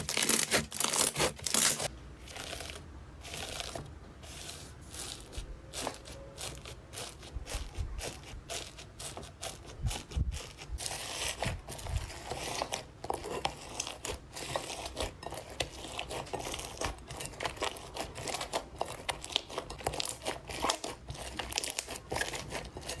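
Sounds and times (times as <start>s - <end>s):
slime crackling and popping: 10.3s - 23.0s.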